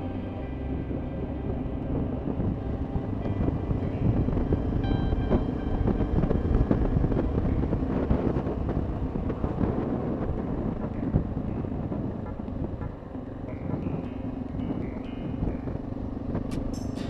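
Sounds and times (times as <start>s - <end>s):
motorcycle engine rumble: 0.0s - 17.0s
wind buffeting microphone: 0.0s - 17.0s.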